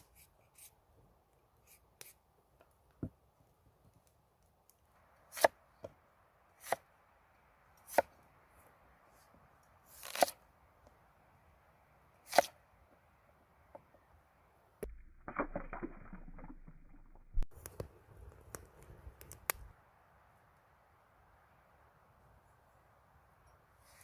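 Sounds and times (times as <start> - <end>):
low steady hiss: 0.0 - 15.2, 17.4 - 24.0.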